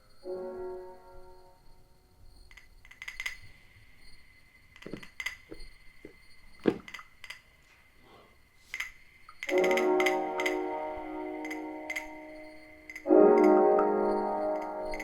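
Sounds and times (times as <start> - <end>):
light clinks and knocks: 4.7 - 7.6.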